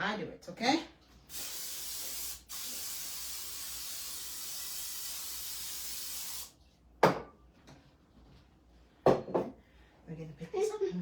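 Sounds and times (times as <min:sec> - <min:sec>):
aerosol spray hissing: 0:01.3 - 0:06.6.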